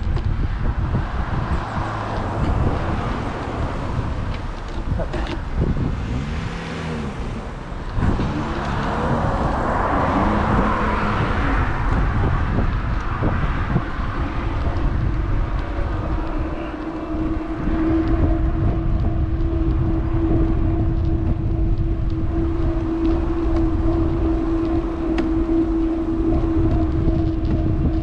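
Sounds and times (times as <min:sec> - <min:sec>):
road traffic: 0:00.0 - 0:28.0
vehicle tyre noise passing: 0:00.0 - 0:28.0
wind on microphone: 0:00.0 - 0:28.0.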